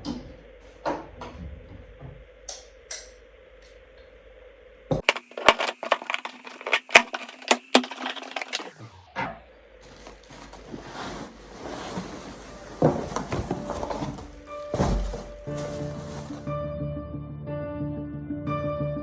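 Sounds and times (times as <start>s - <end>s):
packaging clicks: 5.0s - 8.8s
packaging crackling and snapping: 5.0s - 8.8s.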